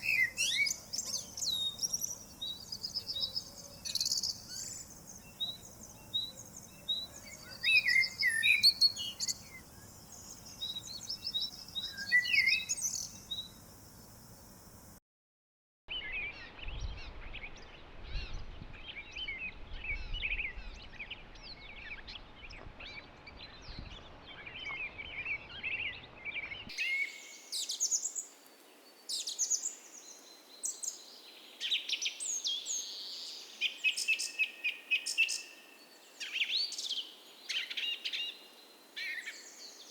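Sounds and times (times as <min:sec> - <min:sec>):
birds chirping and trilling: 0:00.0 - 0:14.9, 0:15.9 - 0:39.9
background hiss: 0:00.0 - 0:15.0, 0:26.7 - 0:39.9.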